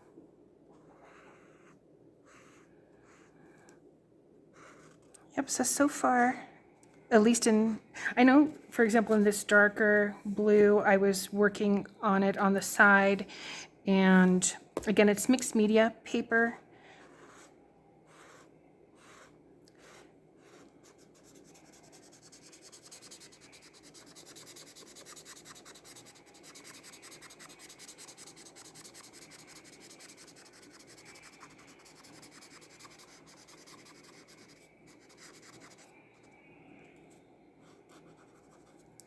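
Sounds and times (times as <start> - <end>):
marker scratching on paper: 0.7 - 3.4, 4.5 - 5.1, 17.0 - 35.9, 37.6 - 38.9.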